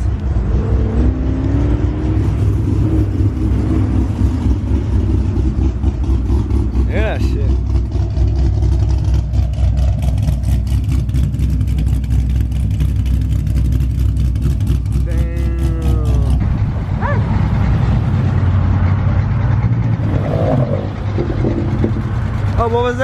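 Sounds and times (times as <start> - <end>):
car exhaust rumbling: 0.0 - 23.0.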